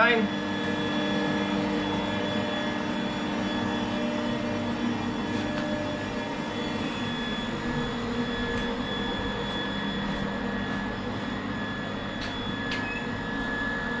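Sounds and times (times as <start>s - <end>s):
workshop machinery whining hum: 0.0s - 14.0s.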